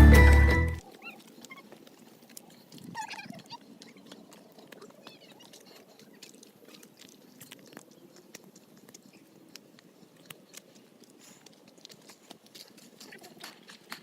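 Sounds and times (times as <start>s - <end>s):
footsteps crunching on trail: 0.8s - 14.0s.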